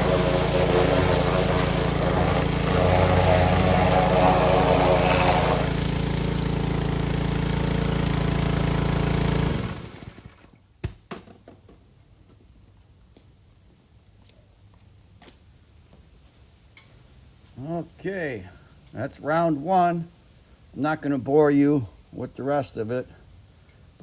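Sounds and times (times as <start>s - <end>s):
hissing water spray: 0.0s - 10.0s
pressure washer engine: 0.0s - 10.5s.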